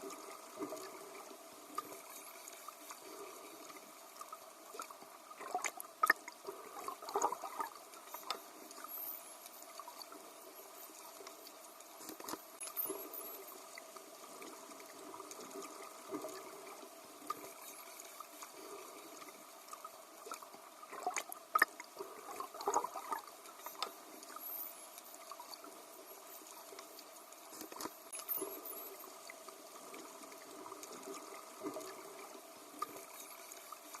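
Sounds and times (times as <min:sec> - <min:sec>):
water splashing: 0:00.0 - 0:09.0, 0:12.0 - 0:34.0.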